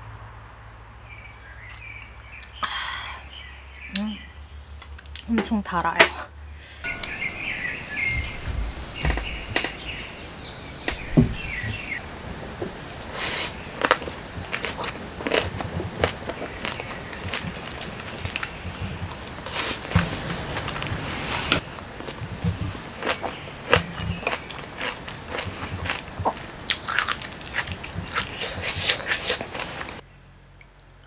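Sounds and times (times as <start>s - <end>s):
birds chirping faintly: 1.0s - 31.0s
person biting and chewing food: 13.2s - 21.0s, 21.6s - 30.0s.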